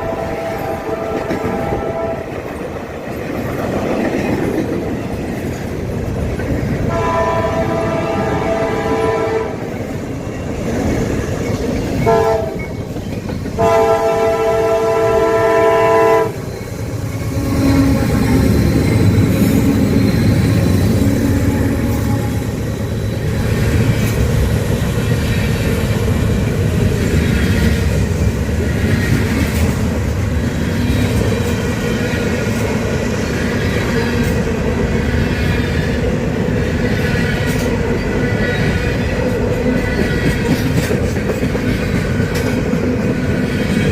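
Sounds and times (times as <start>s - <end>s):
locomotive air horn: 0.0s - 2.4s, 6.9s - 9.7s, 12.1s - 12.6s, 13.6s - 16.5s, 21.3s - 22.6s
diesel locomotives running past: 0.0s - 43.9s
freight cars rumbling and clattering: 9.7s - 13.6s.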